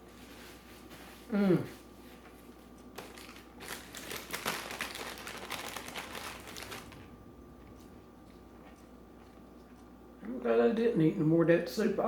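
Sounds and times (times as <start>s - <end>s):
packaging crinkling: 2.8s - 7.1s.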